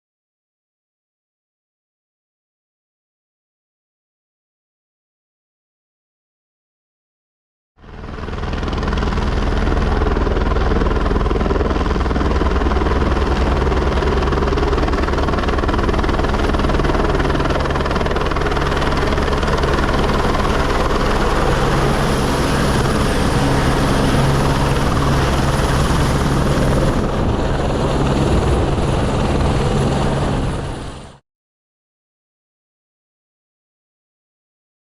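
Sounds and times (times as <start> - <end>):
helicopter rotor and engine: 7.8 - 31.2.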